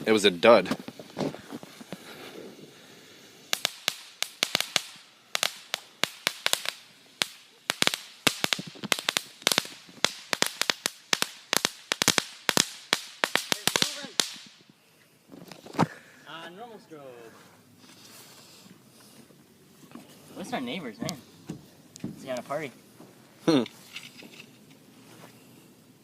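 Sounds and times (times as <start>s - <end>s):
crackling firework: 0.0s - 16.6s.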